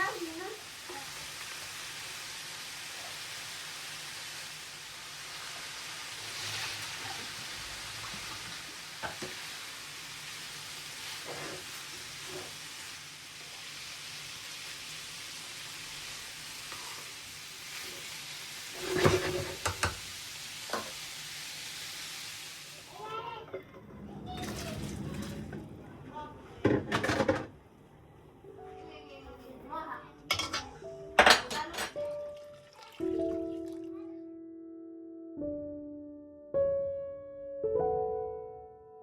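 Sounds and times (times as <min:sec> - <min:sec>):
food sizzling in a pan: 0:00.0 - 0:23.4.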